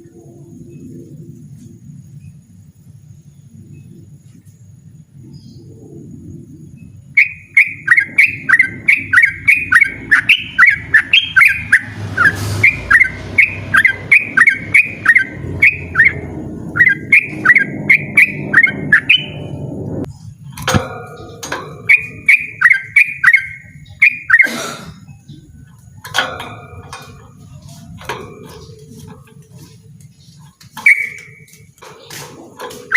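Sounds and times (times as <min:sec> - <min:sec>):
bird singing whistled notes: 0:06.6 - 0:26.3, 0:26.9 - 0:32.9
harsh scratchy bird calls: 0:07.1 - 0:32.9.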